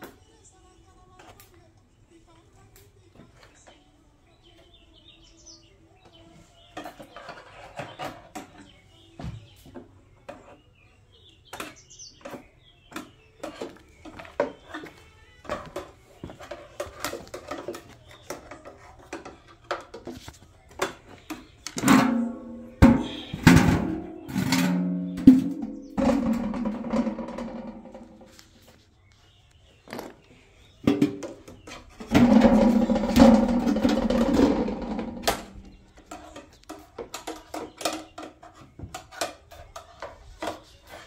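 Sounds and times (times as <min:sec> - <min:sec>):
hard parts clanking and knocking: 0:11.4 - 0:28.4, 0:29.8 - 0:41.0.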